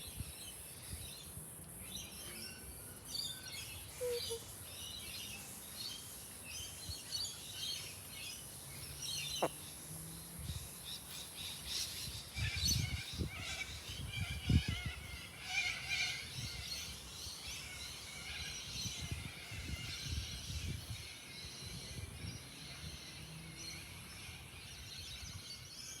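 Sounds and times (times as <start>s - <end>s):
birds chirping: 0.5s - 18.0s.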